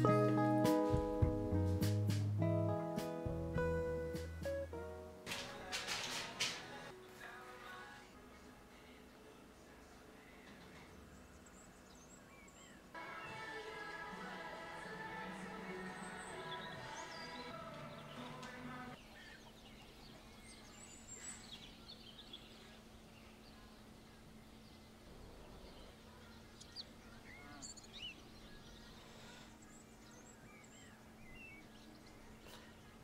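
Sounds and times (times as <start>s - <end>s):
background music: 0.0s - 10.3s, 13.0s - 19.0s.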